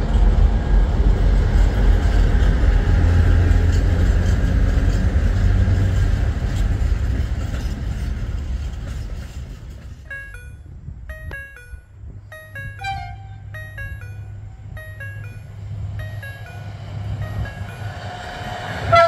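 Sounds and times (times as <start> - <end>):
freight train wheels rumbling: 0.0 - 19.0
music: 10.1 - 18.6.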